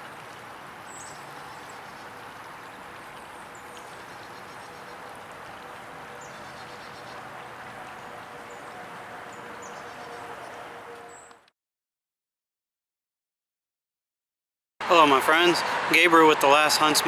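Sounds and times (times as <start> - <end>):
distant highway traffic hum: 0.0 - 11.4, 14.8 - 17.0.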